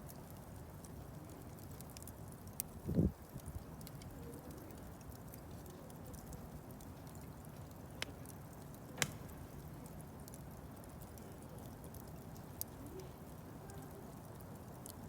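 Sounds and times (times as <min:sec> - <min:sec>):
faint fire crackles: 0:00.0 - 0:15.0
rush of bonfire flames: 0:00.0 - 0:15.0
sharp wood pops: 0:09.0 - 0:09.6.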